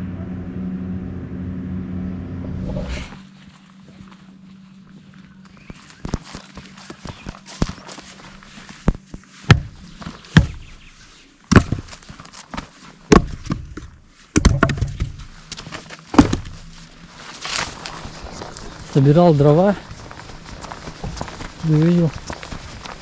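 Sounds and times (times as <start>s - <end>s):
footsteps: 2.6s - 23.0s
wood knocking and thudding: 8.8s - 10.7s, 11.5s - 12.1s, 13.1s - 15.2s, 16.1s - 16.7s.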